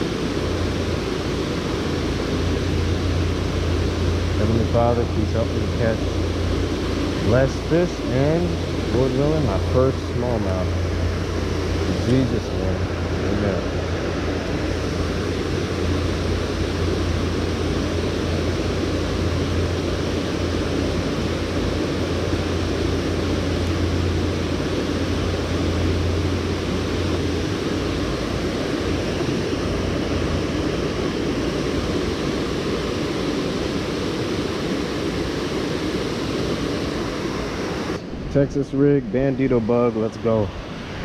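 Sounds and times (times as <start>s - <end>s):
low hum: 0.0s - 41.0s.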